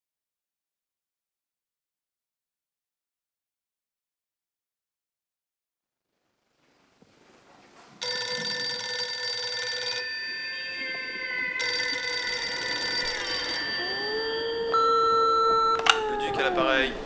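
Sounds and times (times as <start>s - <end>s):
telephone ringing: 8.0s - 16.5s
slow gliding tones: 9.9s - 17.0s
steady beep: 10.1s - 15.9s.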